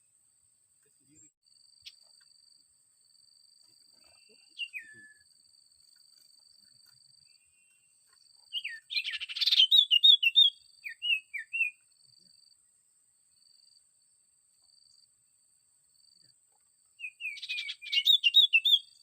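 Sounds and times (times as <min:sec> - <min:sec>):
bird chirping: 0:00.8 - 0:02.4, 0:03.6 - 0:12.4, 0:16.5 - 0:19.0.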